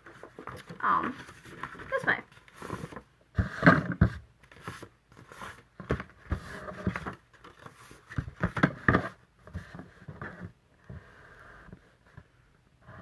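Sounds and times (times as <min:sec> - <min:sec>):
paper rustling: 0:00.0 - 0:03.7, 0:04.4 - 0:10.4.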